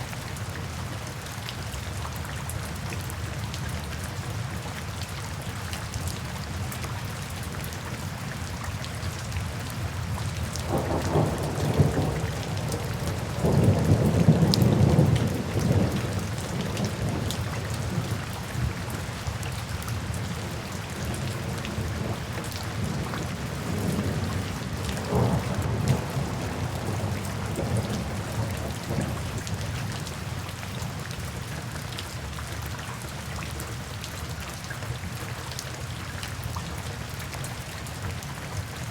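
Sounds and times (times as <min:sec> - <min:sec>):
steady rain falling: 0:00.0 - 0:38.9
thunder rumbling: 0:22.8 - 0:29.4.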